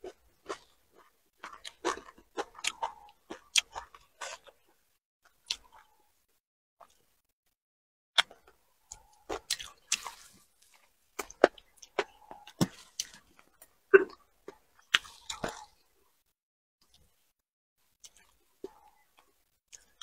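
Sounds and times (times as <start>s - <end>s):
crunchy chewing: 0.0s - 6.1s, 8.2s - 16.0s, 18.0s - 20.0s.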